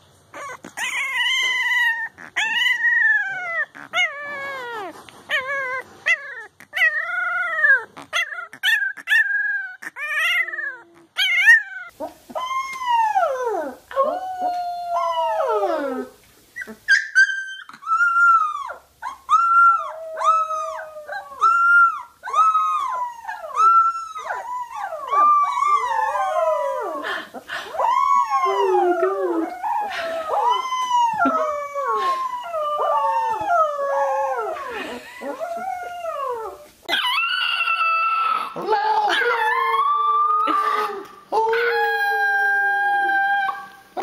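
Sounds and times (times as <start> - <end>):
puppies howling: 16.9 - 27.1, 27.7 - 43.9.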